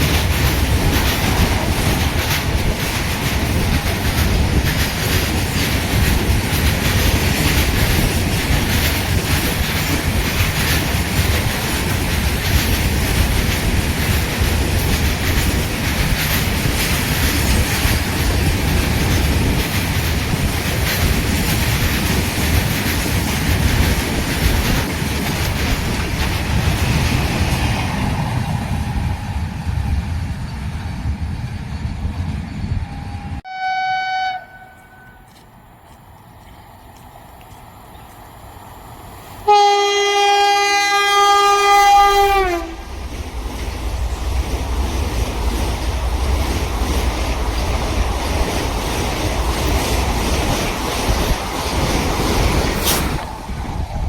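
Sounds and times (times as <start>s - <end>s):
wheels clattering over rails: 0.0s - 28.5s
train rumbling past: 0.0s - 54.0s.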